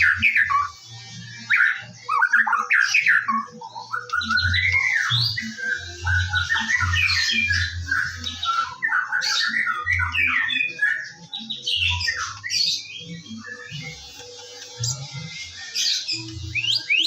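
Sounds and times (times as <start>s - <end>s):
bird singing whistles and chatter: 0.0s - 17.0s.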